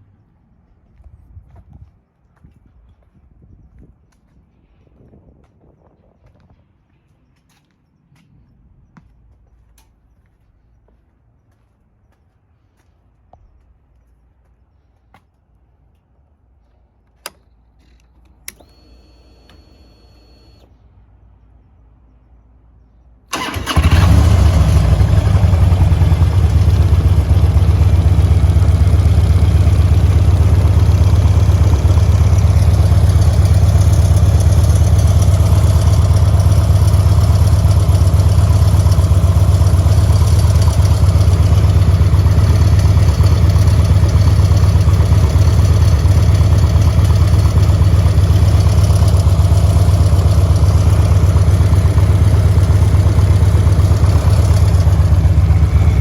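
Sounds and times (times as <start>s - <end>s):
sharp clicks: 17.1s - 19.6s
motorcycle engine starting and idling: 17.1s - 20.7s, 23.3s - 56.0s.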